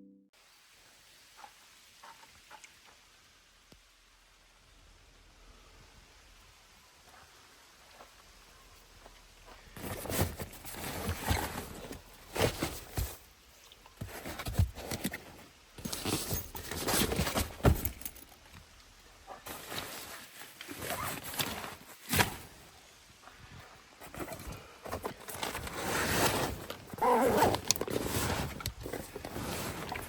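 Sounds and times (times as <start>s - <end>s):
rustling: 6.3s - 30.0s.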